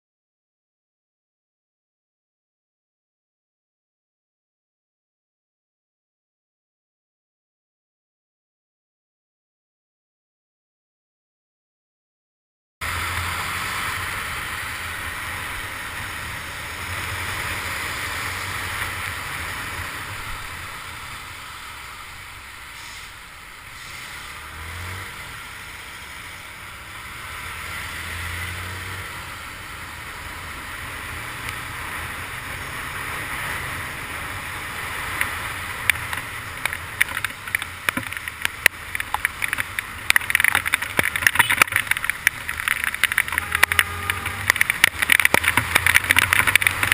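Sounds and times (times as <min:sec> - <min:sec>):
wind and rain on wet road: 0:12.8 - 0:46.9
motorcycle engine running: 0:33.7 - 0:46.9
sharp crackles and taps: 0:35.1 - 0:46.9.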